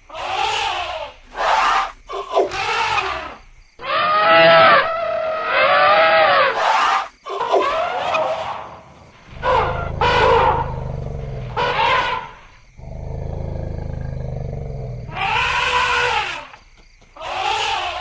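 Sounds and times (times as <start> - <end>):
elephants trumpeting: 3.8 - 6.8, 7.4 - 16.6.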